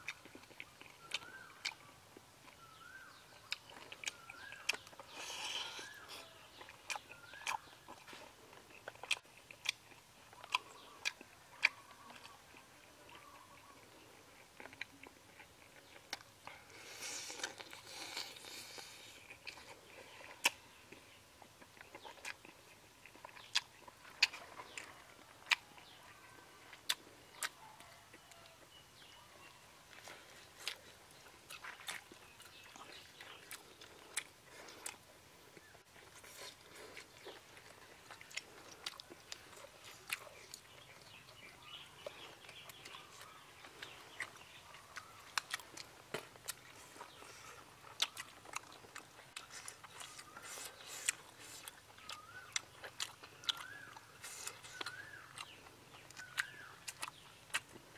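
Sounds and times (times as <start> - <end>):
man chewing with open mouth: 0.0 - 57.9.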